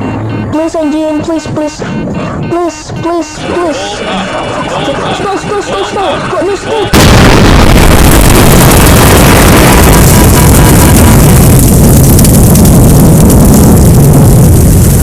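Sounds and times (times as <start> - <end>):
aircraft crashing roar: 3.8 - 12.1.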